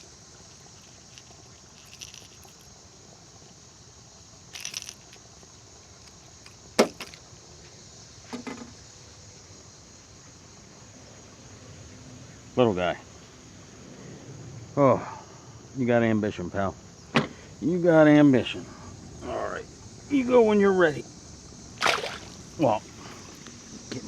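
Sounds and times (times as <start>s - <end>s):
rustles: 0.0s - 2.8s
high insect hum: 0.0s - 24.0s.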